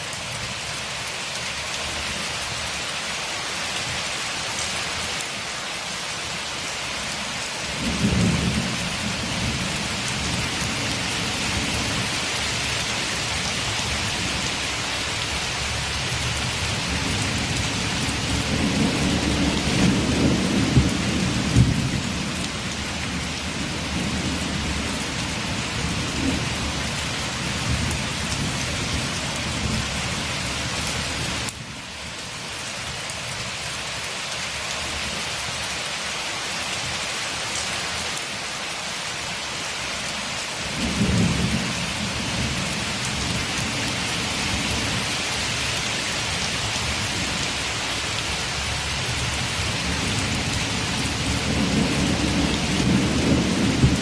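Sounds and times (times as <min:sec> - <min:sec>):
steady rain: 0:00.0 - 0:54.0
thunder rolling: 0:17.2 - 0:22.3, 0:49.8 - 0:54.0.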